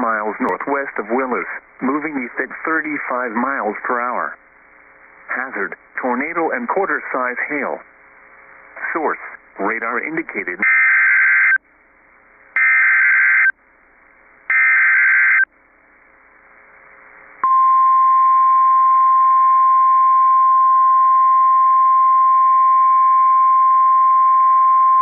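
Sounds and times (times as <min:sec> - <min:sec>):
radio hiss: 0:00.0 - 0:17.4
steady warning alarm tone: 0:10.6 - 0:11.6, 0:12.6 - 0:13.5, 0:14.5 - 0:15.5.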